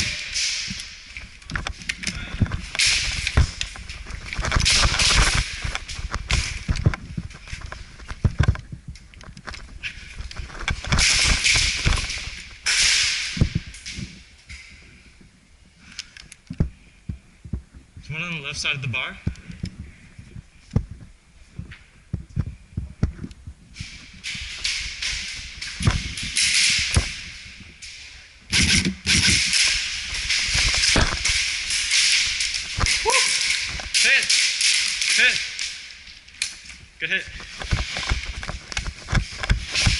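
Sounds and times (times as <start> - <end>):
clothing and gear rustling: 0.0 - 12.6
footsteps: 0.0 - 39.9.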